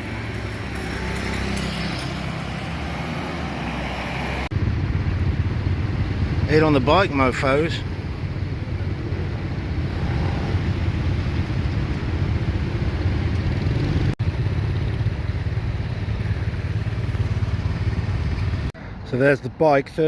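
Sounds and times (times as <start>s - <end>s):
motorcycle engine rumble: 0.0s - 19.1s.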